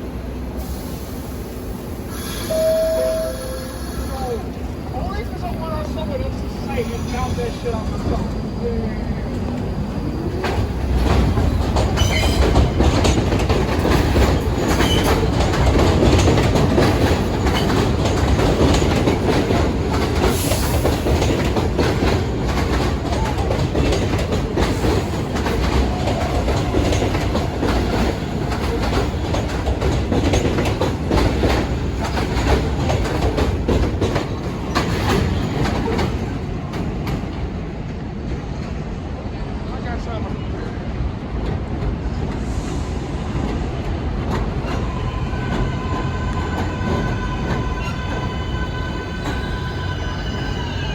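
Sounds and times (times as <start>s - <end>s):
high wheel squeal: 2.1s - 4.5s, 11.9s - 12.6s, 44.6s - 50.9s
train wheels clattering over rails: 4.5s - 38.9s, 40.9s - 50.9s.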